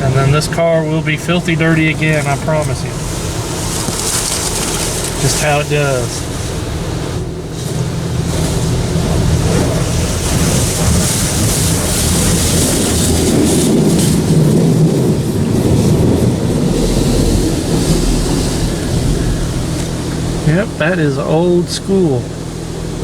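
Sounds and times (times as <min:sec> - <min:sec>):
low machine hum: 0:00.0 - 0:23.0
water spraying over car: 0:00.0 - 0:23.0.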